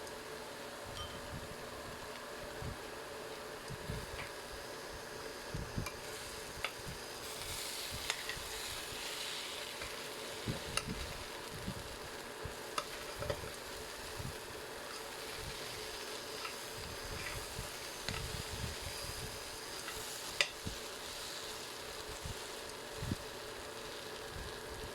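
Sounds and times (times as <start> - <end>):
light sizzling hiss: 0.0 - 24.9
spoon stirring in a pan: 12.7 - 13.6, 14.8 - 21.6.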